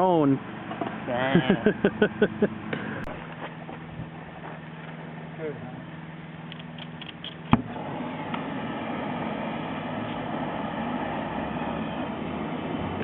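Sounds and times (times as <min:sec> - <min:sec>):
gas torch burning: 0:06.5 - 0:13.0.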